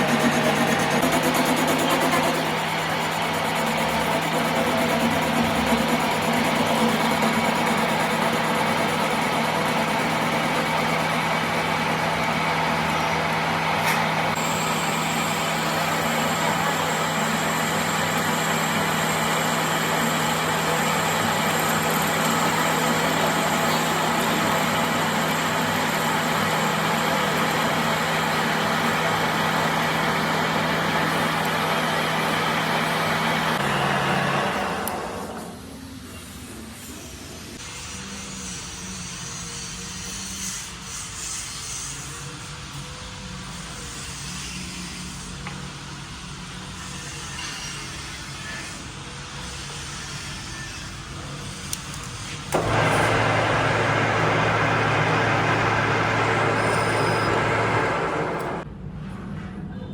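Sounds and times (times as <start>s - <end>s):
machine humming: 0.0s - 35.7s, 52.5s - 58.6s
high whine: 52.5s - 58.6s.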